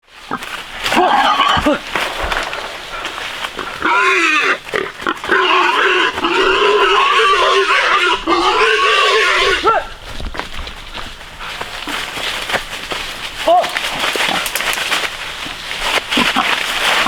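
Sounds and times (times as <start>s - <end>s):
piglets squealing: 0.3s - 9.7s.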